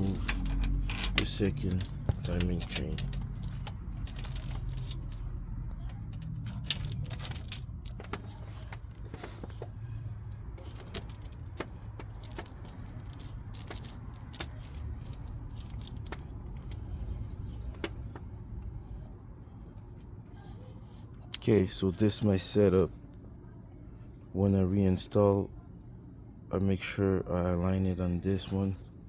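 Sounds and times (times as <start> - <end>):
metal clinks and rattles: 0.0 - 16.8
steady low hum: 0.0 - 29.0.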